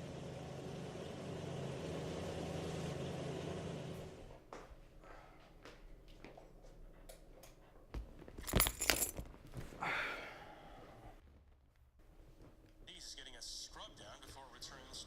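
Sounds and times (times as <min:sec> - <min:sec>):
small metal objects jangling: 0:08.4 - 0:09.3.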